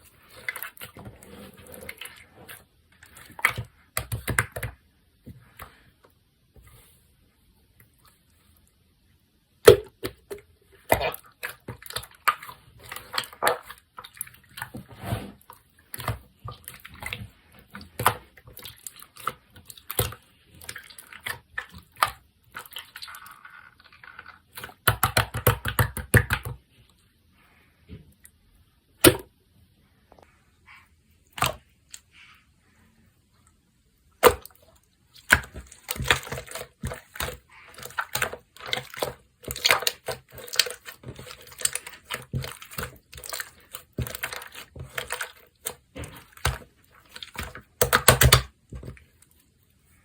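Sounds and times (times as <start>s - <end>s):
slime squished by hand: 34.2s - 49.1s.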